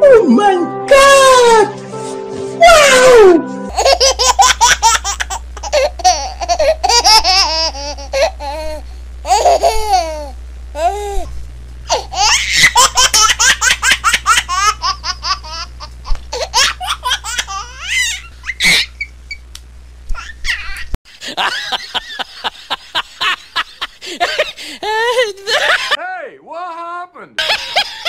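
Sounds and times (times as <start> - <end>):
person laughing hard: 3.7 - 11.3, 21.2 - 26.0, 27.4 - 28.0
steady low hum: 3.7 - 26.0.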